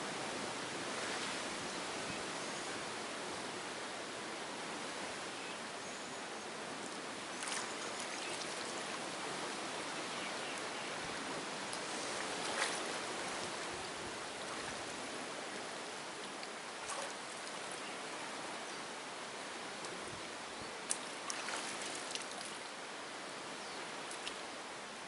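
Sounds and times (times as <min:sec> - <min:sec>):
rushing water: 0:00.0 - 0:25.0
water splashes: 0:07.3 - 0:09.0, 0:11.7 - 0:15.0, 0:16.2 - 0:17.9, 0:20.8 - 0:22.7.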